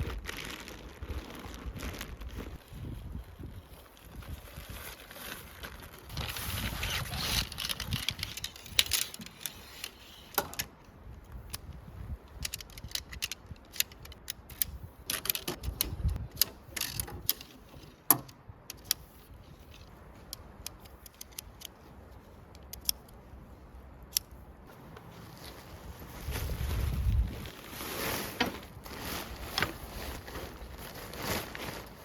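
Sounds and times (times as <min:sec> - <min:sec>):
gear clicking and clacking: 0:06.8 - 0:10.8, 0:11.5 - 0:21.8
rustling: 0:24.7 - 0:32.0.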